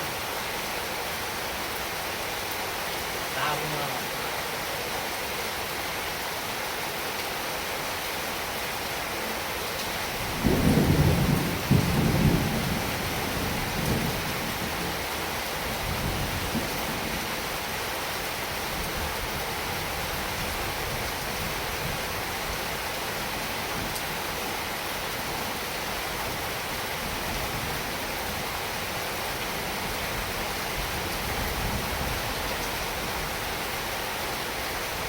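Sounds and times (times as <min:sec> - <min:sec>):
heavy rain falling: 0:00.0 - 0:35.0
thunder rumbling: 0:10.2 - 0:15.0.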